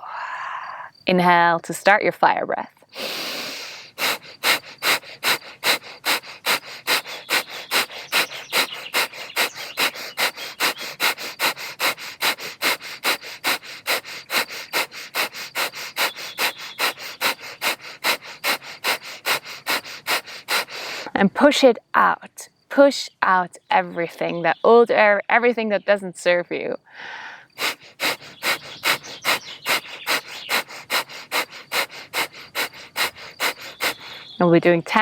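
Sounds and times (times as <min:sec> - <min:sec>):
rapid forceful nasal exhales: 0:02.9 - 0:21.2, 0:26.9 - 0:34.3.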